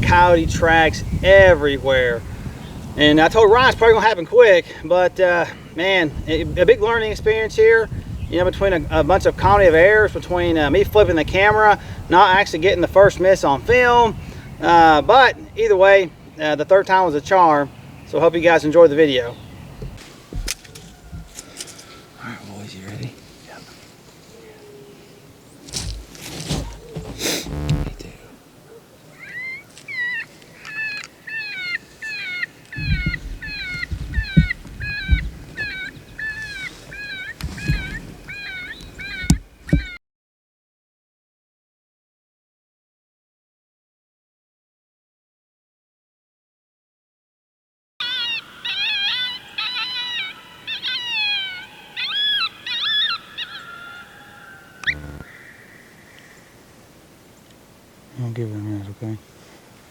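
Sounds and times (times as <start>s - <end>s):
predator call distress squalls: 26.5s - 28.2s, 48.0s - 56.5s
brief low buzz: 27.0s - 28.1s, 54.8s - 55.3s
electronic predator call cries: 27.2s - 28.2s, 29.2s - 40.0s, 48.0s - 56.3s.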